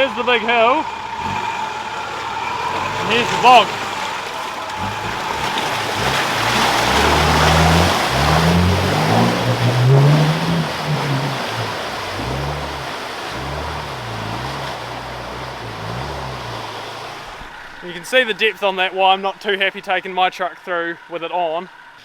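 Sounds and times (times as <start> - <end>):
engine revving hard: 0.0 - 17.5
mud and water splashing: 0.0 - 22.0.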